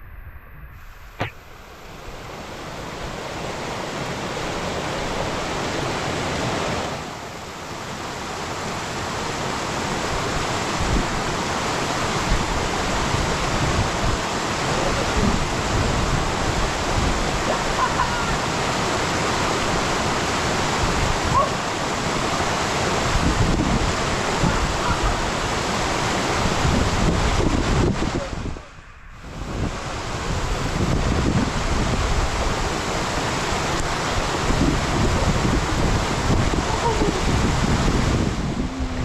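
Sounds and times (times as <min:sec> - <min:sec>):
steady rushing noise: 0:00.0 - 0:11.3, 0:22.3 - 0:39.0.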